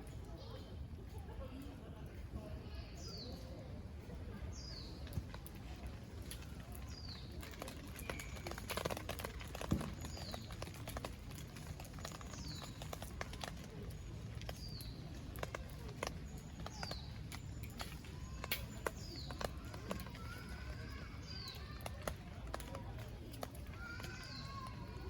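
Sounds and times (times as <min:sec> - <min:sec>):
wood fire crackling and popping: 0:05.0 - 0:25.0.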